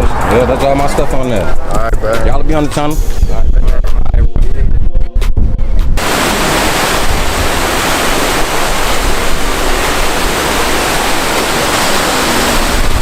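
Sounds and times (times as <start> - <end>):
loud rushing noise: 6.0 - 13.0.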